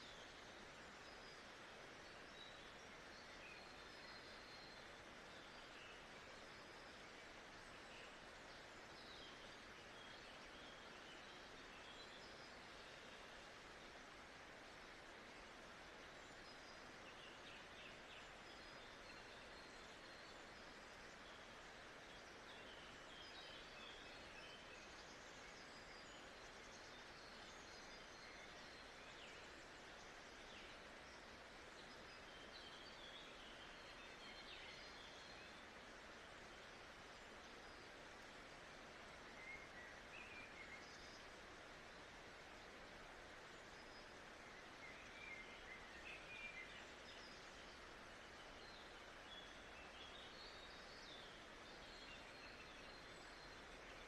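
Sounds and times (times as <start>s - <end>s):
steady hiss: 0.0s - 54.0s
small birds chirping: 16.0s - 54.0s
faint bird chirps and whistles: 39.3s - 41.3s.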